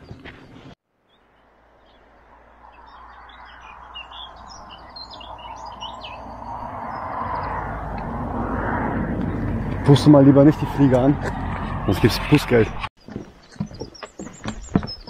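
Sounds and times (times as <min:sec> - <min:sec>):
small birds twittering: 0:00.0 - 0:07.8, 0:12.6 - 0:15.0.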